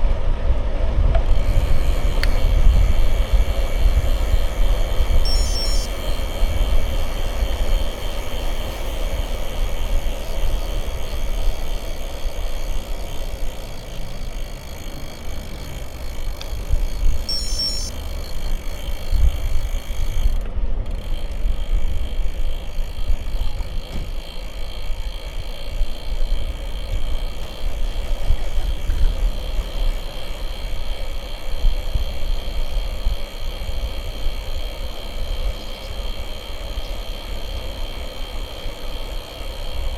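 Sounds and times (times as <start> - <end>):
wind rumbling on microphone: 0.0 - 17.4
bicycle tyres rolling: 0.0 - 39.9.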